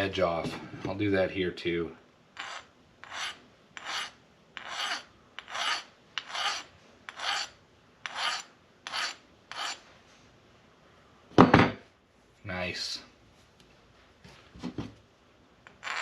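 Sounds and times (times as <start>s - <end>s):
hand file rasping on metal: 2.4s - 9.8s.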